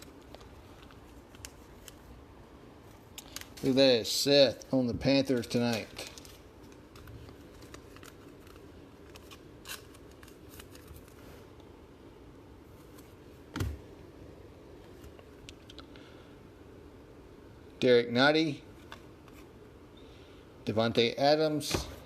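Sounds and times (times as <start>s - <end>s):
cards scraping: 5.2s - 11.3s.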